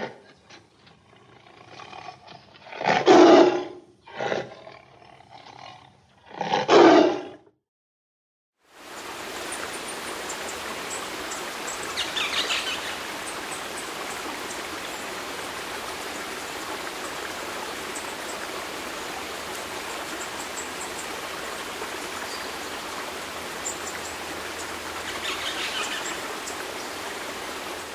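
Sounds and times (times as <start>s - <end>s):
running water rushing: 8.6s - 27.9s.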